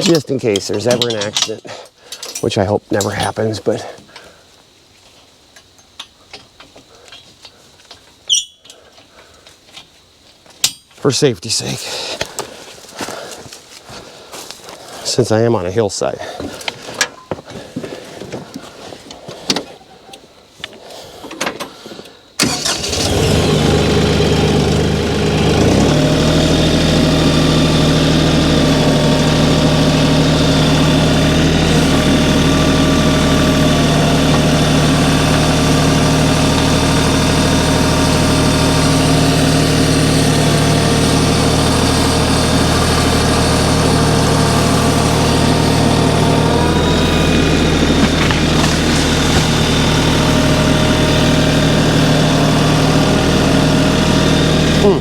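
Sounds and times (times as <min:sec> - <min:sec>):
tractor engine starting and running: 0:00.0 - 0:01.6, 0:02.2 - 0:04.0, 0:22.4 - 0:55.0.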